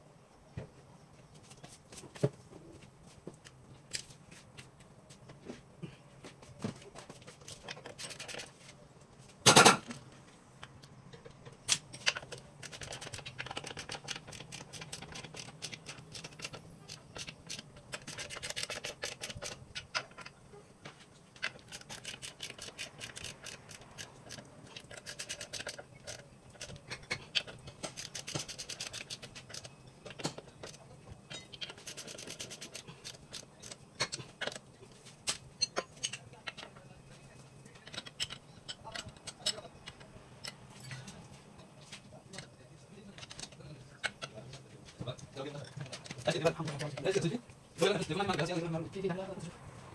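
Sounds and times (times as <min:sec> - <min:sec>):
rapid ratchet clicking: 0:12.2 - 0:19.9, 0:21.4 - 0:29.7, 0:31.7 - 0:33.8.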